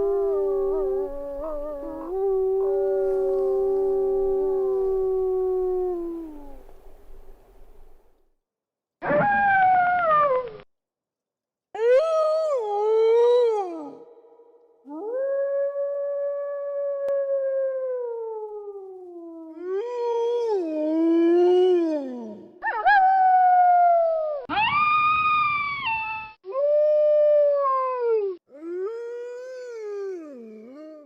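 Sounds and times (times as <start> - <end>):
wolves howling: 0.0 - 6.6.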